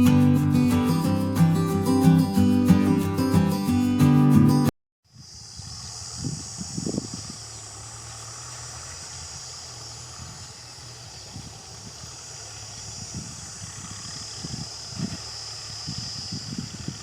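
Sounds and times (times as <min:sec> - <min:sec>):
high-pitched hiss: 0:05.1 - 0:07.6
engine humming: 0:07.3 - 0:16.2.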